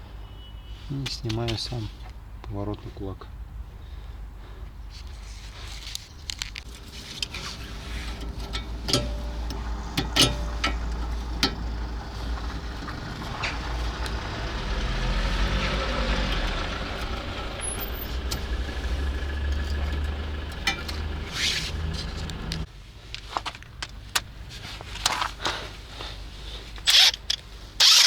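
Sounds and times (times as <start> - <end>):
metal tools knocking and clinking: 8.0 - 11.7, 17.8 - 21.1.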